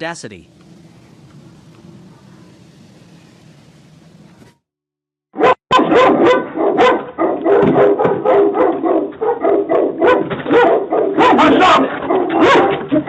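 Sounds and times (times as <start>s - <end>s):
dog barking rapidly: 5.4s - 13.0s.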